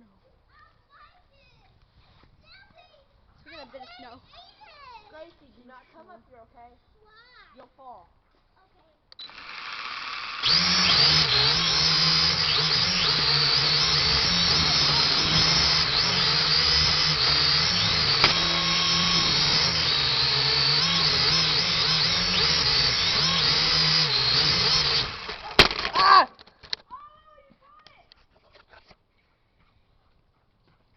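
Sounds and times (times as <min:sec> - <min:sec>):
drone motors whining: 0:09.2 - 0:26.0.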